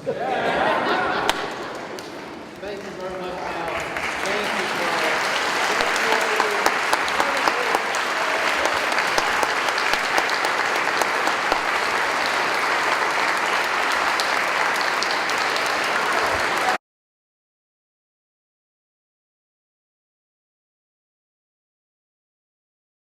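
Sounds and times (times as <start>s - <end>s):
audience applauding: 0.3s - 16.8s.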